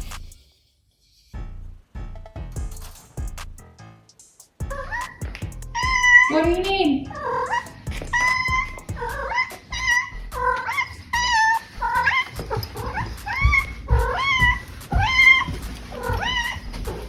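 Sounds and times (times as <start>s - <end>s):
cat meowing: 4.7s - 17.0s.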